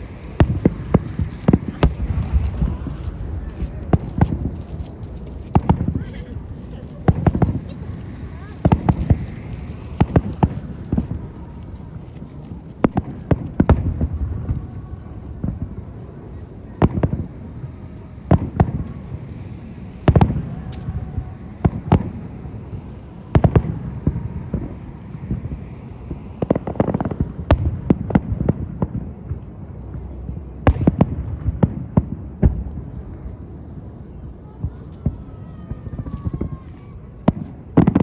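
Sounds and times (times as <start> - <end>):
low rumble: 0.0 - 26.4
fireworks bursting with sharp bangs: 0.0 - 38.0.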